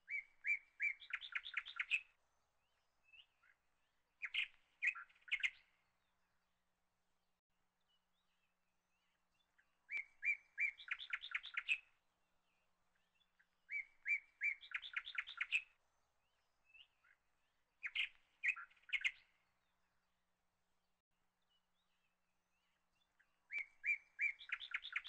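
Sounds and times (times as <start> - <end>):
songbird singing: 0.0 - 6.8, 7.7 - 25.0.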